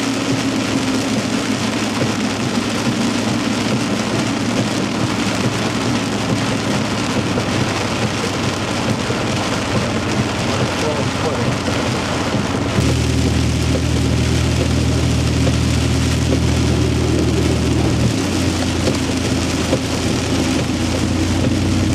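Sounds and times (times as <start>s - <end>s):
heavy rain on a truck: 0.0s - 21.9s
truck engine humming: 0.0s - 21.9s.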